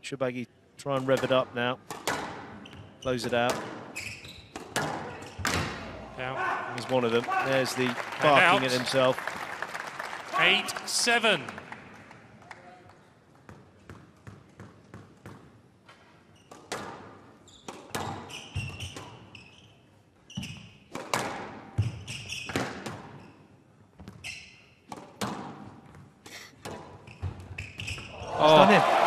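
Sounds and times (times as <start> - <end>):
squash ball impacts: 1.1 - 2.6, 3.3 - 6.0, 20.9 - 23.1, 24.9 - 26.0
shoes squeaking on wooden floor: 2.5 - 3.2, 3.9 - 5.6, 17.5 - 20.8, 24.0 - 24.7.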